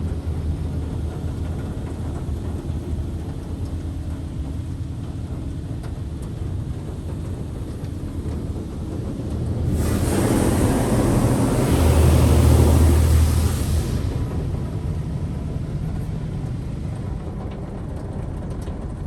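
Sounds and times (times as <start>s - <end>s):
car wash machine rumbling: 0.0s - 16.8s
high-pressure spray hissing: 9.6s - 15.0s.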